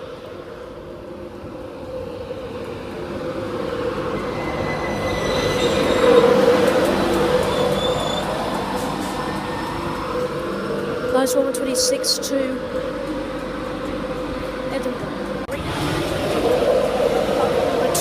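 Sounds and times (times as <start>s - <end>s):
electric train humming: 0.0s - 18.0s
brake and wheel squeals: 4.0s - 11.0s.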